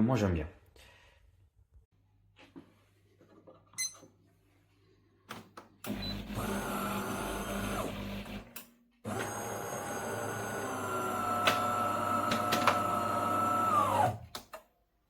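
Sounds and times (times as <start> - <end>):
coffee machine whirring: 5.9 - 14.3.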